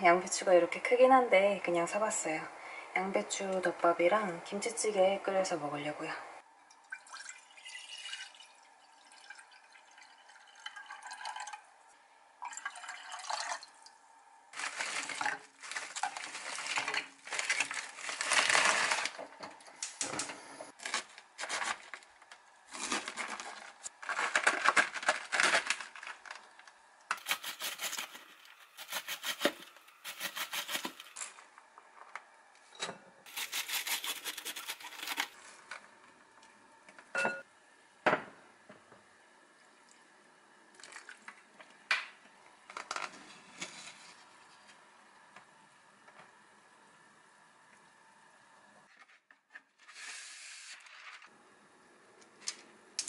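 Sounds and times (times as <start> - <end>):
water poured into pot: 6.8 - 11.6, 12.4 - 13.9
knife shredding cabbage on board: 27.2 - 31.2, 33.3 - 35.4.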